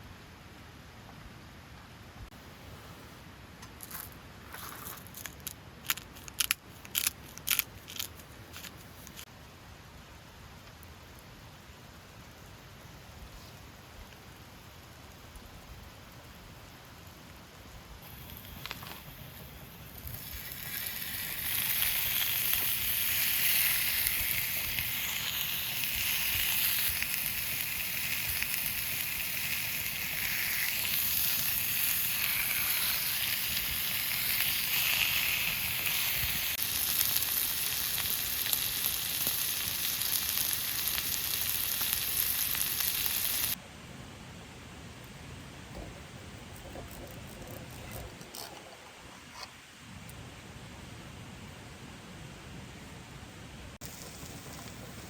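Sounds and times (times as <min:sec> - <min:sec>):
batter sizzling: 0:13.2 - 0:43.6, 0:53.8 - 0:55.0.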